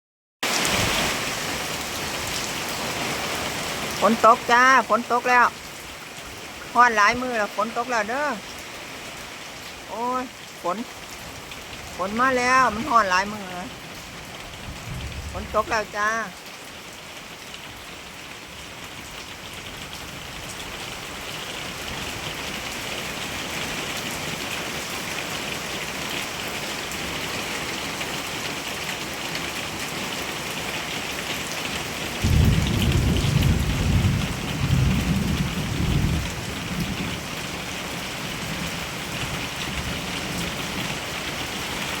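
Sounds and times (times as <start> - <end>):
heavy rain pouring: 0.4 - 42.0
thunder rumble: 14.5 - 15.6, 32.2 - 37.2.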